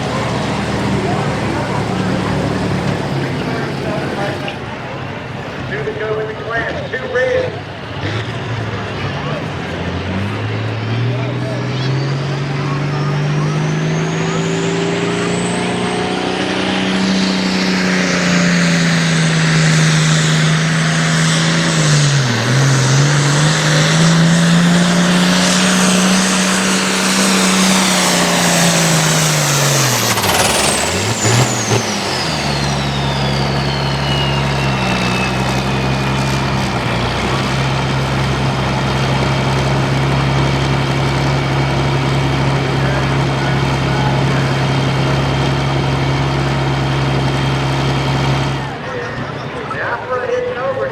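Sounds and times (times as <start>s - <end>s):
tractor diesel engine at full throttle: 0.0s - 50.8s
turbo whistle: 25.5s - 36.8s.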